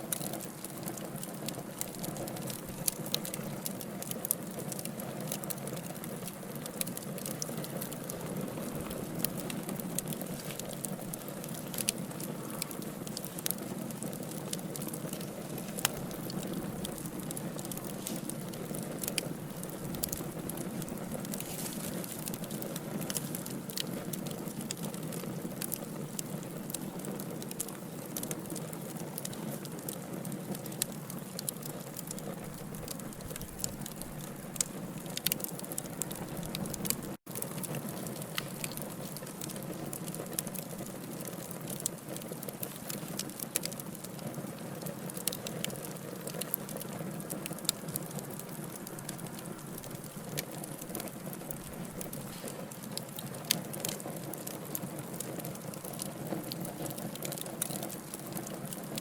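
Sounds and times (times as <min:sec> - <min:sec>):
logs crackling and popping: 0:00.0 - 0:59.0
fire hissing: 0:04.7 - 0:27.3, 0:44.9 - 0:53.7.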